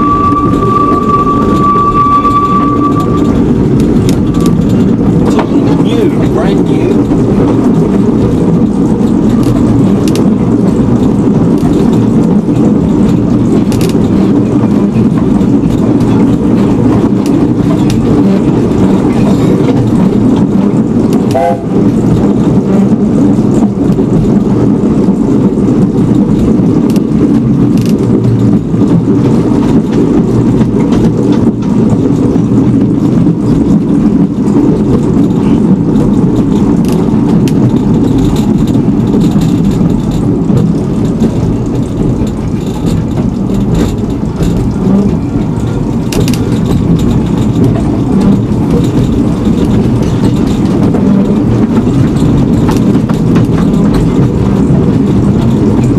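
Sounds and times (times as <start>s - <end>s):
faint tone: 0.0s - 3.4s
train rumbling: 0.0s - 55.9s.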